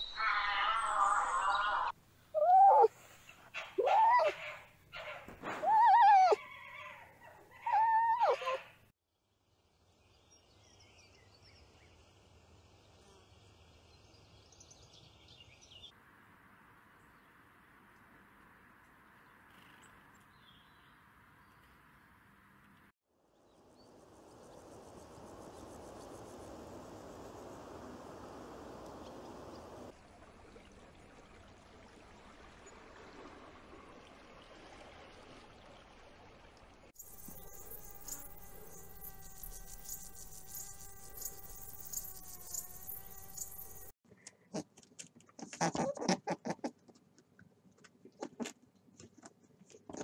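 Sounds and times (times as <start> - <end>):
faint high bird chirps: 0.0 - 2.9, 37.0 - 43.9
dog whimpering: 2.4 - 2.9, 3.8 - 4.4, 5.5 - 6.4, 7.6 - 8.7.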